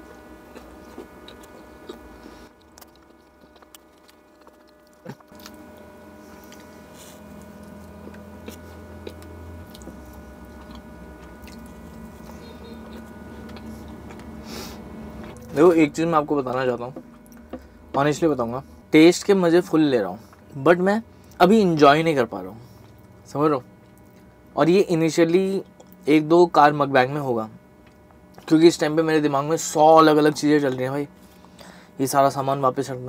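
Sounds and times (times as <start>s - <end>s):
person chewing food: 0.0s - 15.6s, 16.4s - 18.6s
faint steady hum: 0.0s - 33.0s.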